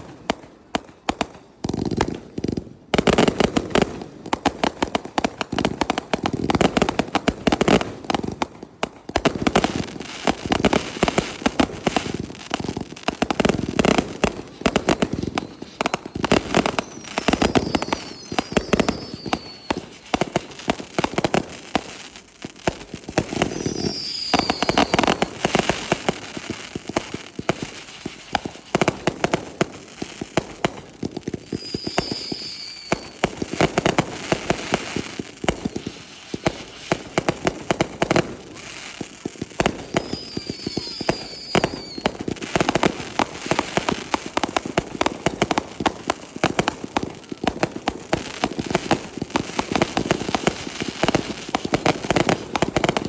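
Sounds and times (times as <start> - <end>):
fireworks booming and crackling: 0.0 - 53.0
high firework whistles: 9.6 - 22.2, 23.1 - 29.3, 31.3 - 44.3.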